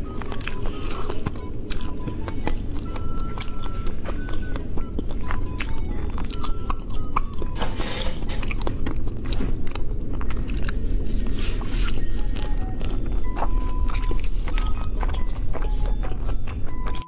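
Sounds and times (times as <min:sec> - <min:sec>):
mouth clicks: 0:00.0 - 0:10.8
biting and chewing: 0:00.0 - 0:17.0.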